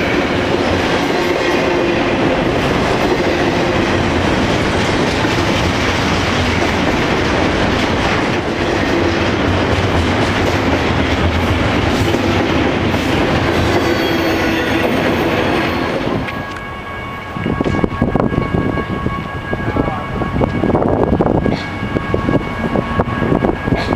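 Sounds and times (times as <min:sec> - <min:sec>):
freight train wheels clattering: 0:00.0 - 0:18.9.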